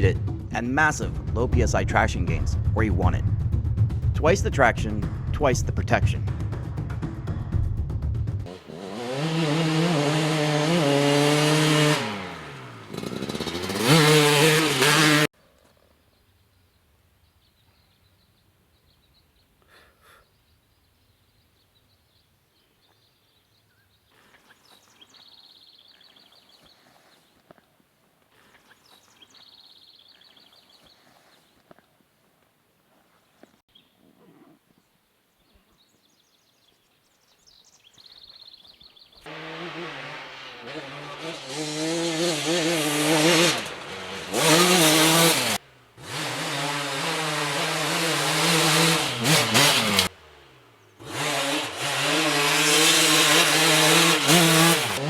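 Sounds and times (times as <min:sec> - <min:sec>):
two-stroke motorcycle engine revving: 0:08.4 - 0:15.3, 0:39.2 - 0:55.0.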